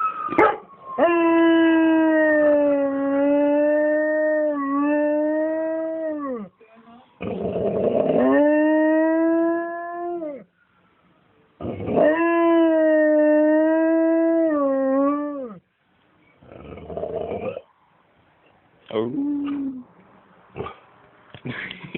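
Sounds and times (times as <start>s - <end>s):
dog howling: 0.0s - 6.5s, 8.0s - 10.5s, 11.6s - 15.6s.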